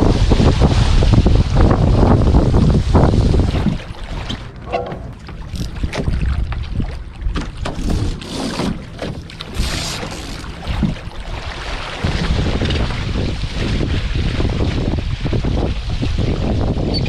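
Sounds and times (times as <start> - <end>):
wind buffeting microphone: 0.0 - 8.2, 8.8 - 17.0
low uneven rumble: 0.0 - 16.7
water rushing and splashing: 0.0 - 17.0.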